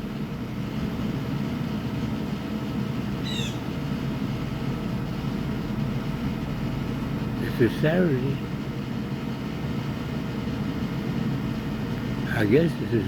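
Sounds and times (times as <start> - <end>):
steady low hum: 0.0 - 13.0
high bird call: 3.2 - 3.7.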